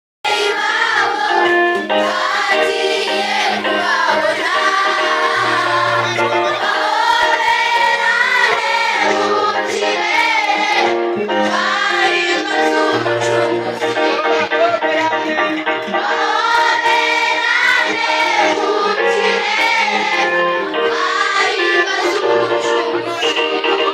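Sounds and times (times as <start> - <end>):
school choir singing: 0.3 - 23.9.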